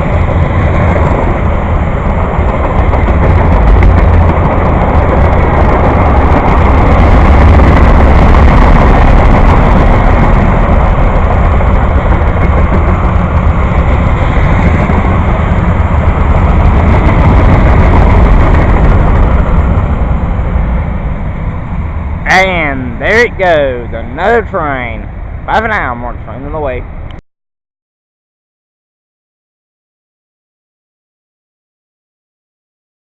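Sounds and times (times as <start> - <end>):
train passing rumble: 0.0 - 27.2.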